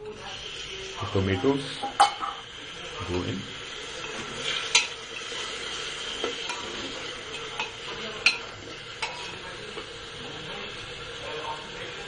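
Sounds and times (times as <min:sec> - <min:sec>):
tomatoes sizzling in hot oil: 0:00.0 - 0:12.0
metal spoon clinking against pot: 0:04.6 - 0:05.3, 0:07.3 - 0:09.2.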